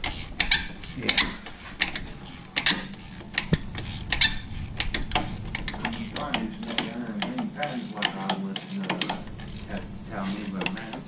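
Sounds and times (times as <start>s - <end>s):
hand ratchet clicking: 0.0s - 11.0s.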